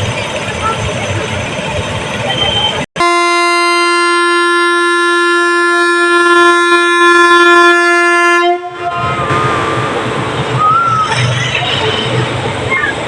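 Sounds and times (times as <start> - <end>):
train horn blast: 2.4 - 9.6.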